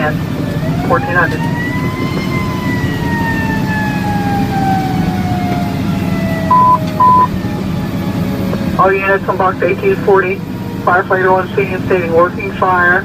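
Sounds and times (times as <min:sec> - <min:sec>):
fire engine siren wailing: 0:00.0 - 0:13.0
truck engine rumble: 0:00.0 - 0:13.0
short beeps: 0:06.5 - 0:07.3.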